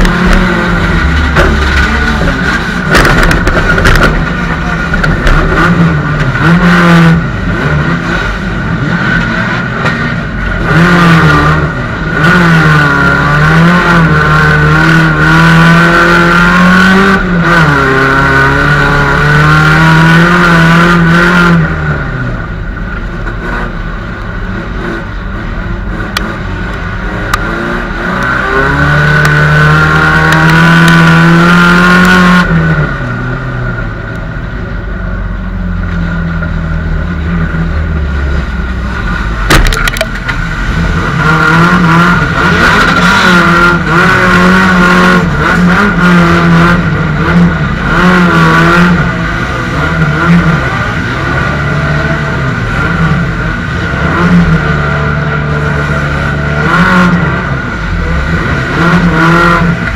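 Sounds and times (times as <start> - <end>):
knocks and clatter: 0.0 - 6.6, 39.1 - 40.6
car engine revving: 0.0 - 59.9.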